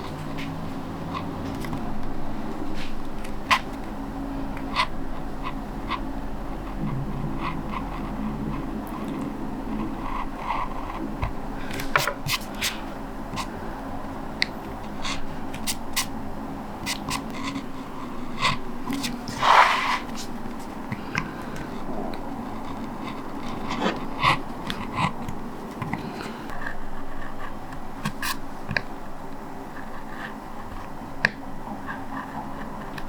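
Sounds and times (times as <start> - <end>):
blade scraping lino: 18.4 - 20.8.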